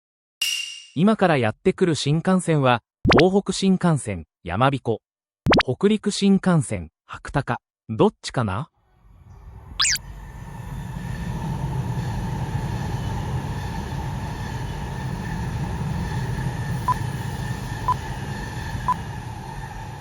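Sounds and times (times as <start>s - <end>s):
bullet train running: 9.5s - 20.0s.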